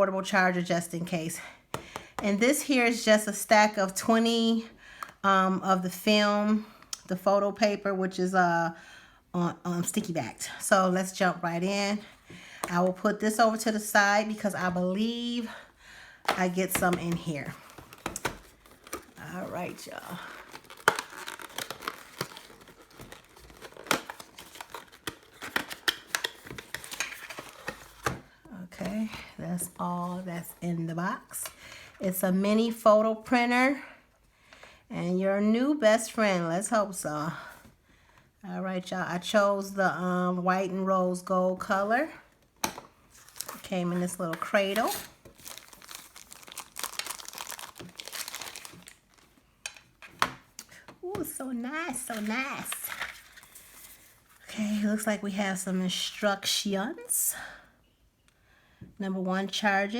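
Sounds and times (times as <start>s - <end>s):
paper and plastic crinkling: 16.3s - 28.2s, 43.1s - 50.3s, 51.9s - 54.4s.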